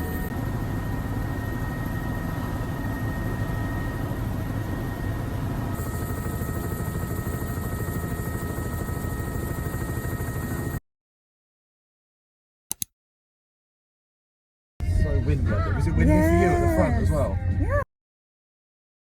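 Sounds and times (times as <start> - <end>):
helicopter engine whine: 0.0 - 10.8
helicopter rotor beat: 0.0 - 10.8.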